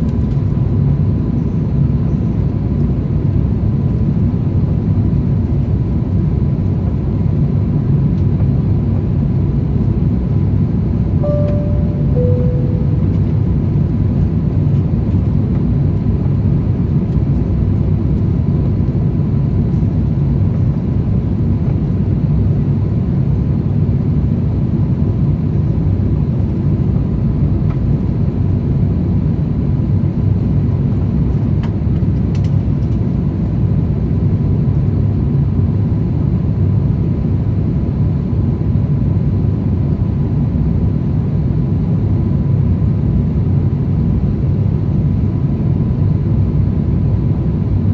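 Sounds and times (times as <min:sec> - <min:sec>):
faint steady high tone: 0:11.2 - 0:13.7.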